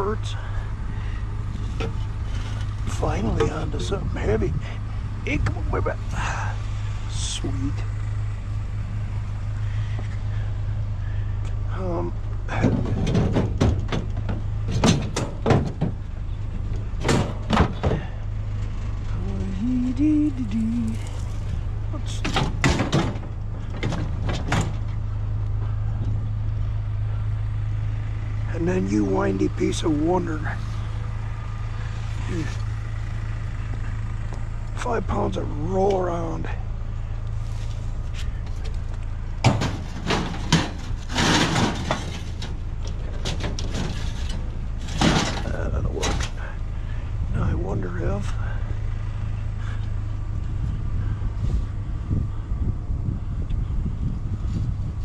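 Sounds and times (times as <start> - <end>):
low engine hum: 0.0 - 55.0
scrap metal clanking: 0.4 - 4.1, 12.5 - 19.0, 39.2 - 47.0.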